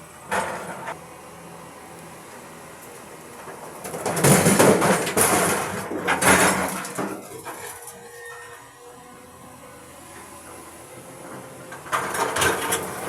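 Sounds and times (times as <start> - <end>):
boulders crashing into truck bed: 3.8 - 7.8.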